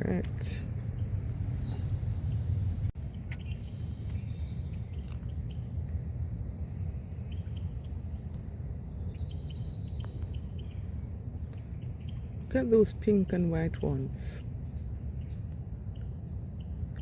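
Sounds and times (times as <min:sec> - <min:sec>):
insects buzzing: 0:00.0 - 0:17.0
bird chirps: 0:00.9 - 0:06.0, 0:07.2 - 0:08.0, 0:09.1 - 0:13.2.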